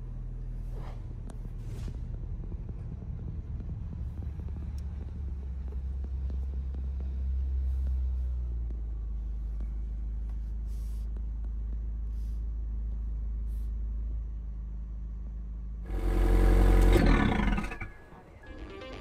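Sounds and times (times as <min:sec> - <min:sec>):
car engine idling: 0:00.0 - 0:18.7
loud exhaust rev: 0:15.8 - 0:18.0.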